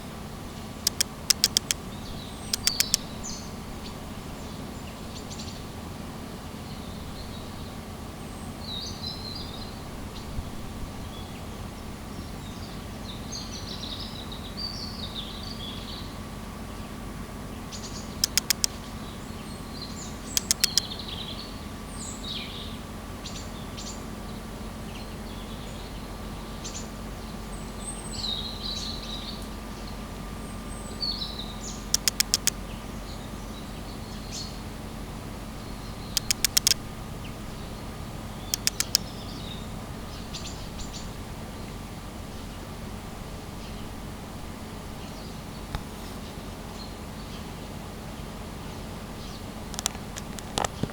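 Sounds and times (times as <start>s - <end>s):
sharp clicks: 0.9s - 1.8s, 2.4s - 3.1s, 18.2s - 18.7s, 20.4s - 20.9s, 31.9s - 32.6s, 36.2s - 36.8s, 38.5s - 39.1s, 49.7s - 50.9s
small birds chirping: 0.9s - 3.6s, 17.7s - 18.8s, 19.4s - 22.5s, 26.6s - 34.6s, 35.5s - 42.6s.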